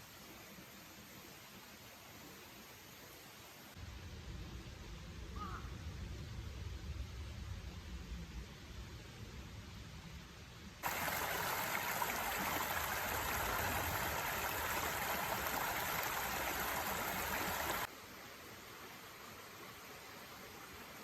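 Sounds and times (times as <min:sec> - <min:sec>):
running water rushing: 0:10.8 - 0:21.0.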